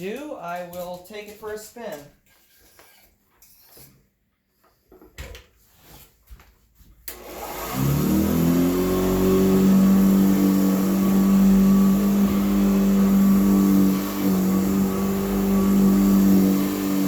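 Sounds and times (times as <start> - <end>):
vacuum cleaner motor running: 7.1 - 17.0.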